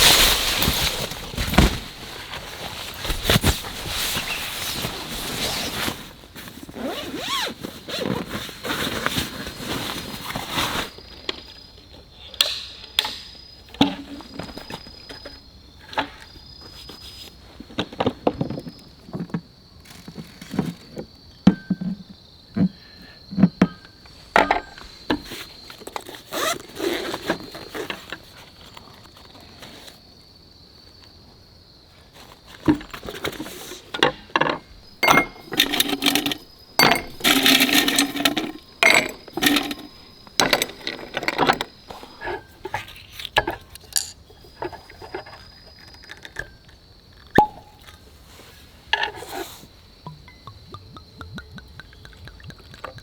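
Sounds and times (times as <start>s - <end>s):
cookware and glassware clinking: 32.7s - 44.2s, 50.0s - 53.0s.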